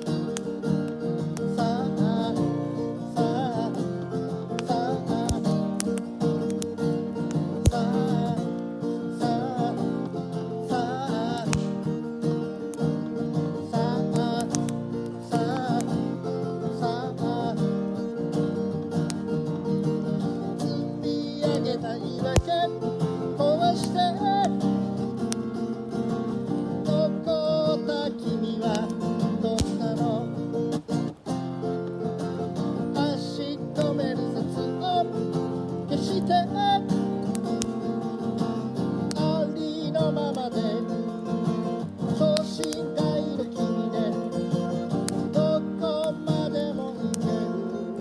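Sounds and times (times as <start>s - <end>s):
acoustic guitar strumming: 0.0s - 48.0s
sharp clicks: 11.4s - 11.9s, 14.1s - 16.0s, 33.8s - 34.0s, 37.2s - 37.8s, 44.9s - 45.4s.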